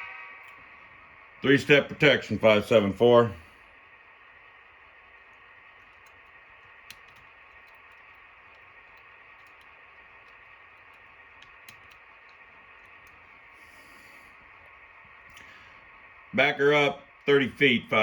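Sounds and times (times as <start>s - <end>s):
faint steady hum: 0.0s - 18.0s
soft hiss: 0.0s - 18.0s
light clicks: 5.3s - 14.2s.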